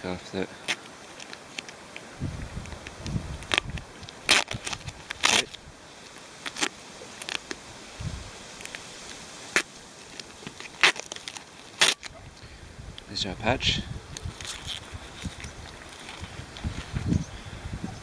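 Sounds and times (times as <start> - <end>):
short crackling rips: 0.6 - 7.7, 8.5 - 12.2, 14.1 - 17.1.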